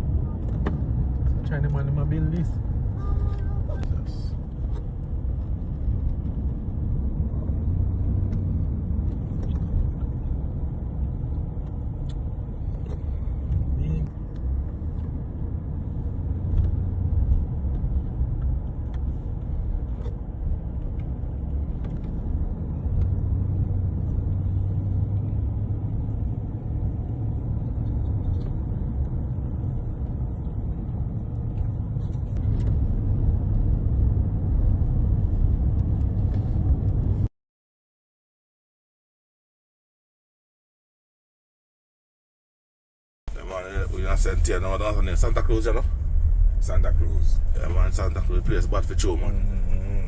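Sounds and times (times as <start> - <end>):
car interior rumble: 0.0 - 37.3, 43.3 - 50.0.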